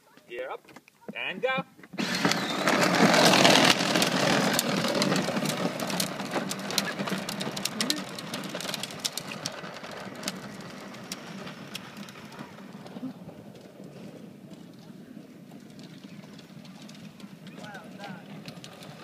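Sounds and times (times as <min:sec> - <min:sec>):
wheels clicking and rattling: 0:00.1 - 0:19.0
electric motor whirring: 0:02.0 - 0:05.4.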